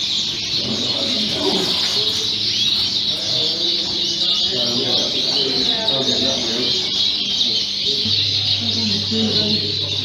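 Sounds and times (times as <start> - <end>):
canaries singing and chirping: 0.0 - 10.0.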